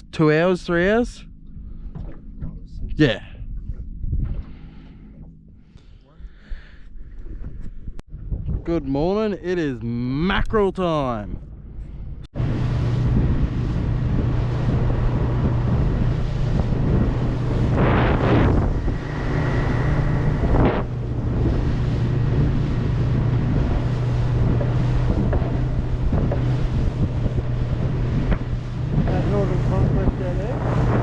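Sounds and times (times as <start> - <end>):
boat engine running: 0.0 - 31.0
wind rushing over microphone: 12.1 - 31.0.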